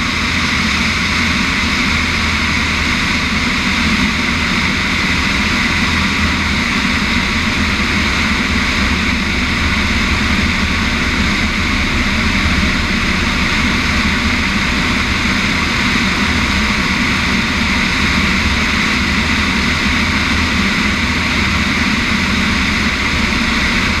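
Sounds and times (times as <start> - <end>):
propeller plane engine droning: 0.0 - 24.0.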